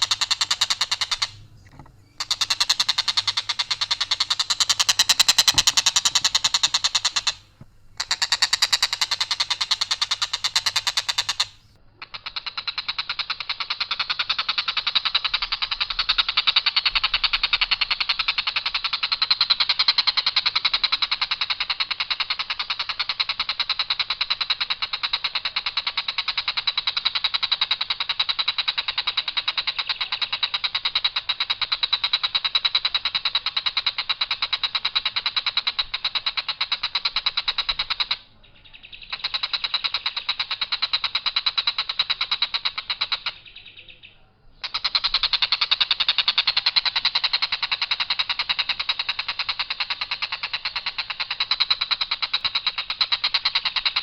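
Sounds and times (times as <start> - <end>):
kingfisher rattling trill: 0.0 - 13.2.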